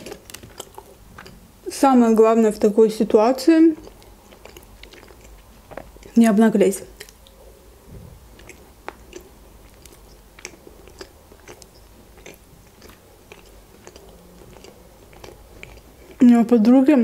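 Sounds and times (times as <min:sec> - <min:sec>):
chewing with wet mouth clicks: 0:00.0 - 0:01.4, 0:03.7 - 0:06.2, 0:06.9 - 0:07.4, 0:08.3 - 0:16.5.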